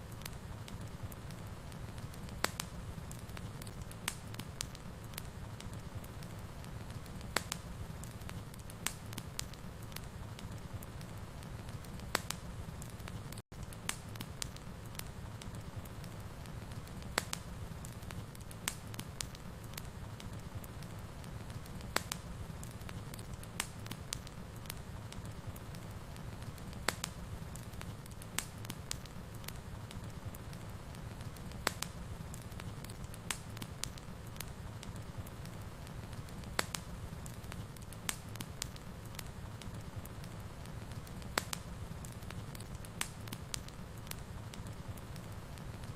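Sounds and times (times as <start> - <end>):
wood fire crackling: 0.0 - 45.9.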